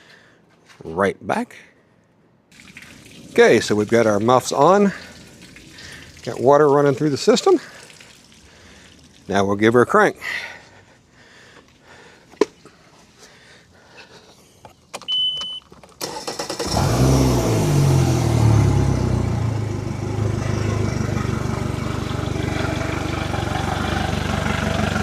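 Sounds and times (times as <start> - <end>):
outboard motor starting and idling: 2.6 - 6.4, 16.0 - 25.0
short high beep: 15.1 - 15.6.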